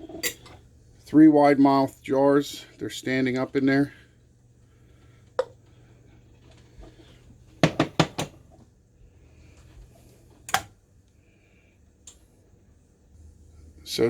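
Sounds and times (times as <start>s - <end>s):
kitchen items knocking and clinking: 7.6s - 8.4s.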